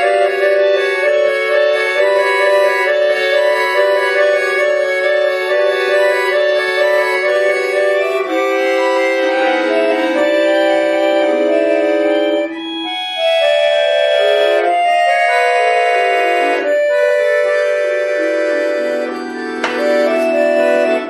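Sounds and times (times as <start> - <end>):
button accordion playing: 0.0 - 21.0.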